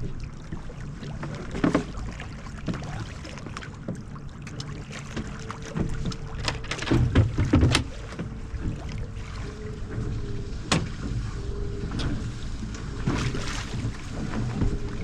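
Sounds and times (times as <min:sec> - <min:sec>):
low rumble: 0:00.0 - 0:15.0
thin hum: 0:00.0 - 0:15.0
fishing gear knocking and clicking: 0:06.0 - 0:07.9.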